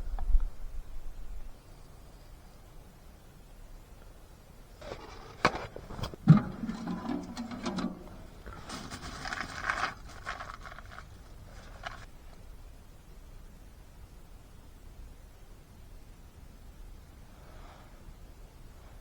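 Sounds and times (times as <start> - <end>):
scraping and rustling: 4.8 - 12.1.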